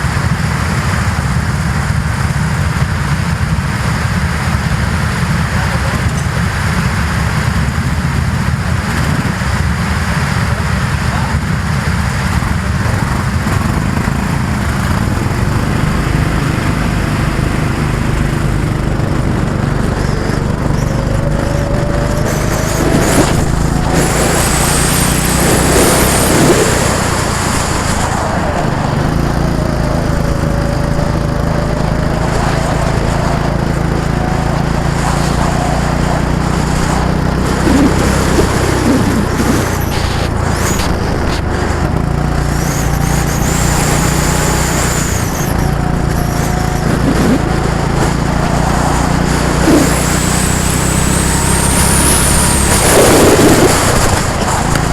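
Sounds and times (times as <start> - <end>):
go-kart engines droning: 0.0 - 54.9
go-kart passing close: 0.0 - 54.9.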